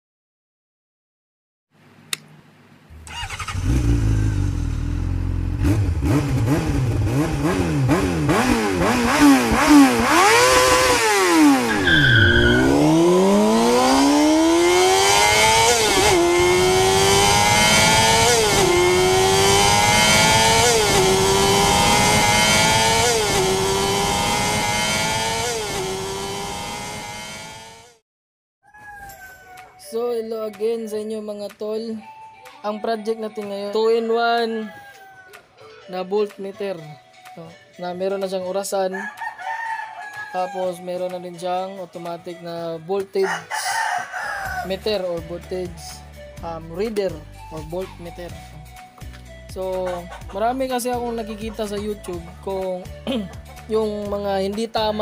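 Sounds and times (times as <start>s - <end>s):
motorcycle engine revving: 2.9s - 28.0s.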